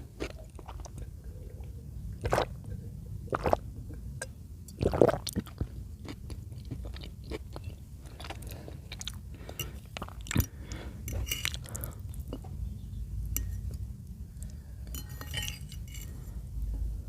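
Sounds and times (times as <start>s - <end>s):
wet squishy chewing: 4.8s - 12.3s.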